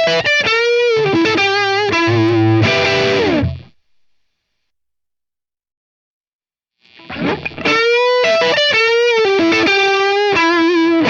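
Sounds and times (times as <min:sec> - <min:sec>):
distorted electric guitar lead: 0:00.0 - 0:04.1, 0:06.9 - 0:11.0.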